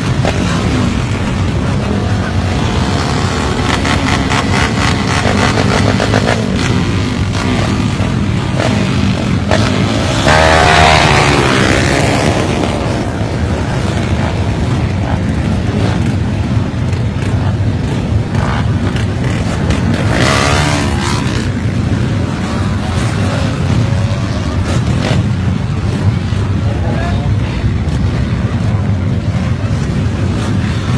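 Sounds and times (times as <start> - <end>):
loud motorcycle engines running: 0.0 - 30.9
engine revving up: 2.2 - 14.4, 18.4 - 21.9.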